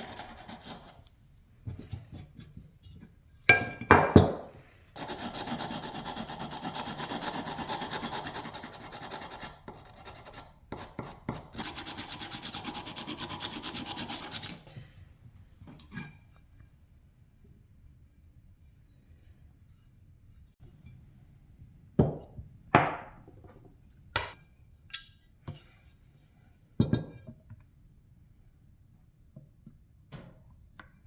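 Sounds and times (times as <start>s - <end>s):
hand rubbing on metal: 11.6s - 14.7s.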